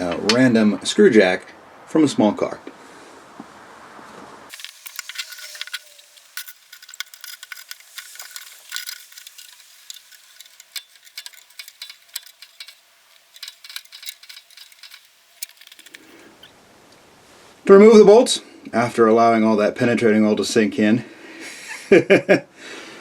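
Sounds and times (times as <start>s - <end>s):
screw jack clicking and rattling: 4.5s - 16.5s.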